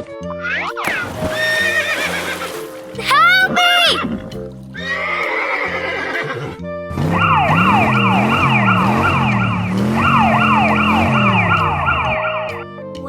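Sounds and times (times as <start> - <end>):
cartoon background music: 0.0 - 13.0
emergency siren: 7.2 - 12.3.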